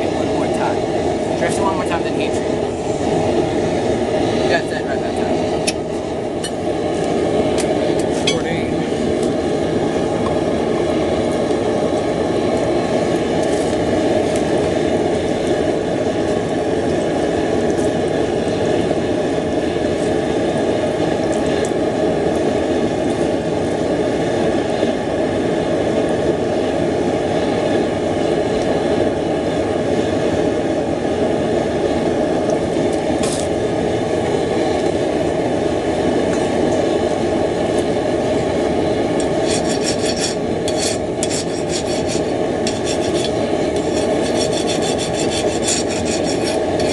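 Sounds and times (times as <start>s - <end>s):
forge roaring: 0.0s - 46.9s
metal scraping strokes: 39.2s - 46.9s.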